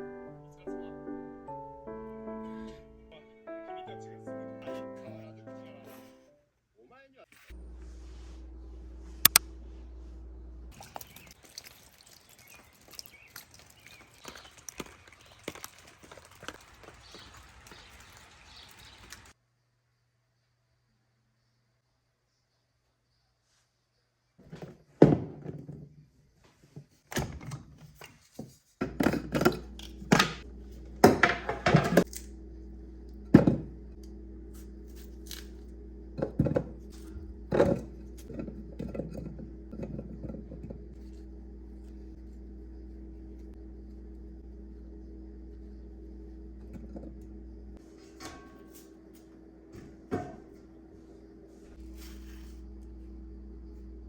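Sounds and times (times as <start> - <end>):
appliance hum: 7.5 - 19.4, 28.8 - 54.0.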